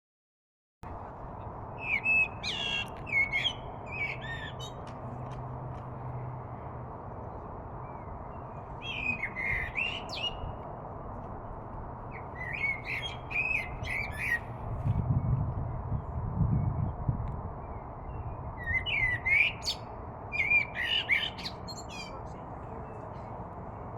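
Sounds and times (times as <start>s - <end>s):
steady outdoor hiss: 0.9s - 23.9s
birds chirping and squawking: 12.4s - 14.5s.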